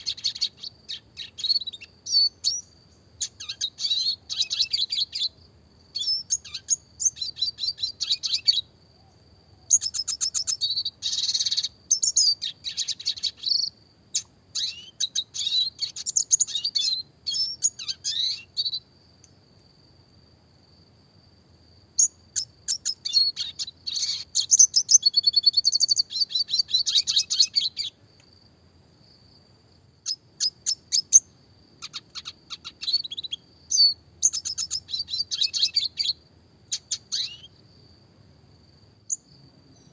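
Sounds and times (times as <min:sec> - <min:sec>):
bird chirping and trilling: 0:00.0 - 0:08.7, 0:09.7 - 0:18.8, 0:22.0 - 0:28.0, 0:30.0 - 0:37.6.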